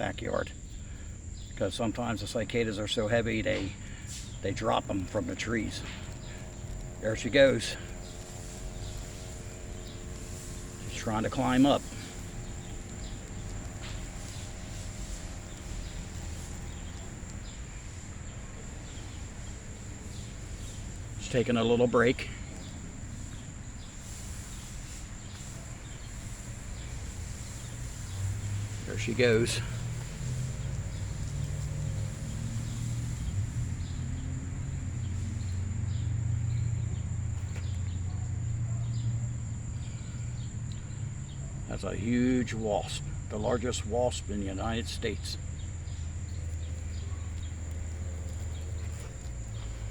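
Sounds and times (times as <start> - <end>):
steady low hum: 0.0 - 49.9
high-pitched insect trilling: 3.2 - 38.0.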